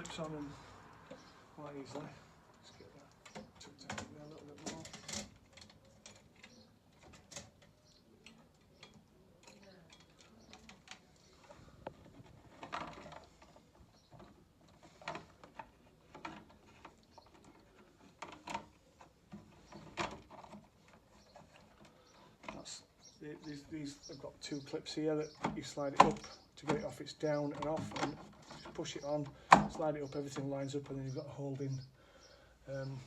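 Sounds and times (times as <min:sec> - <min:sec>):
parts clicking and knocking: 0:00.0 - 0:23.7.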